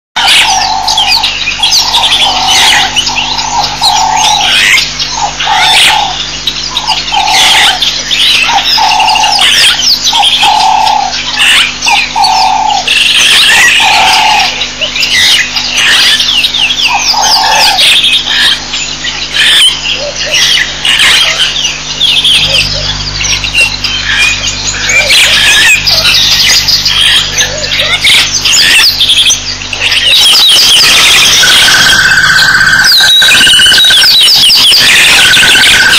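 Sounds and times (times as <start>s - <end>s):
birds chirping and trilling: 0.2s - 35.9s
low-pitched bird note: 19.3s - 35.9s.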